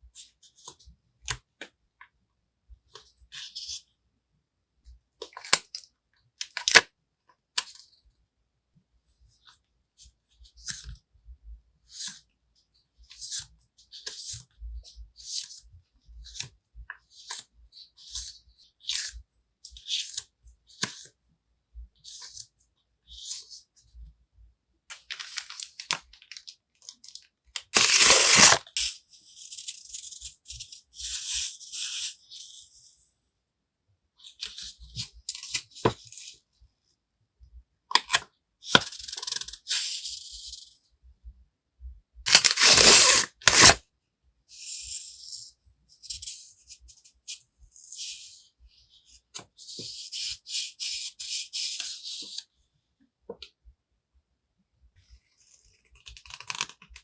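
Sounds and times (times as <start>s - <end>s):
packaging crinkling and rustling: 27.8s - 28.6s, 42.3s - 43.8s.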